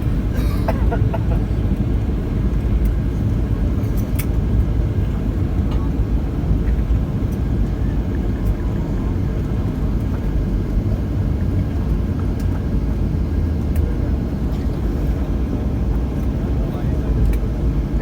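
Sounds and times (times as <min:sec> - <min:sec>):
airliner cabin low rumble: 0:00.0 - 0:18.0.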